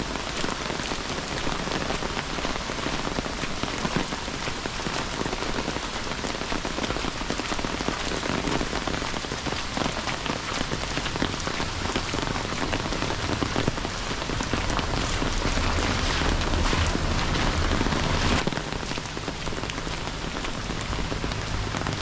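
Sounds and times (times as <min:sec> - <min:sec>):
steady rain patter: 0:00.0 - 0:22.0.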